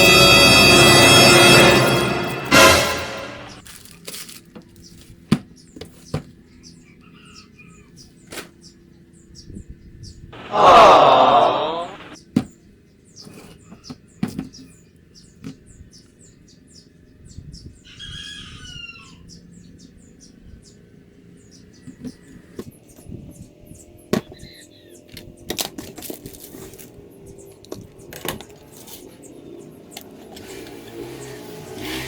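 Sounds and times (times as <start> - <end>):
chicken call: 10.4 - 12.2.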